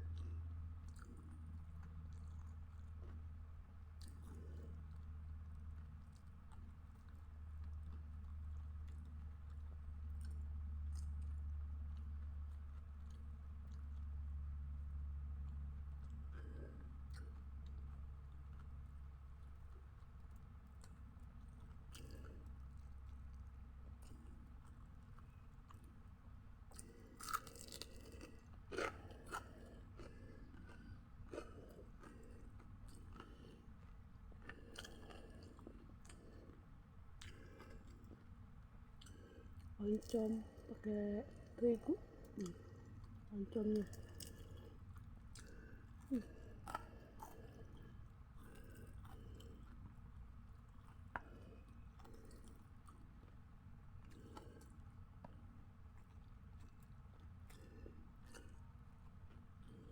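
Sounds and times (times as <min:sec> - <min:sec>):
person chewing crunchy food: 0:00.0 - 0:59.9.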